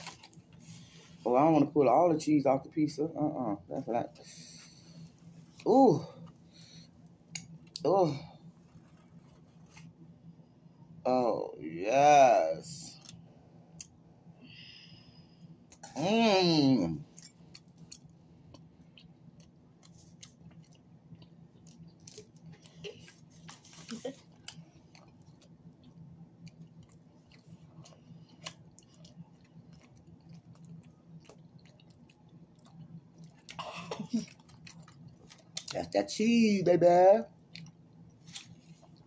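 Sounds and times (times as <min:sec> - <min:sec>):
wet chewing and mouth clicks: 0:17.1 - 0:33.6, 0:34.2 - 0:36.0, 0:37.4 - 0:39.0.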